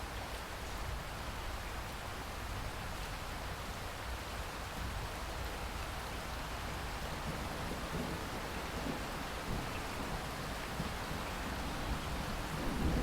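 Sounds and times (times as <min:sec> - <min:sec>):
rain falling: 0:00.0 - 0:13.0
low thunder rumble: 0:07.2 - 0:13.0.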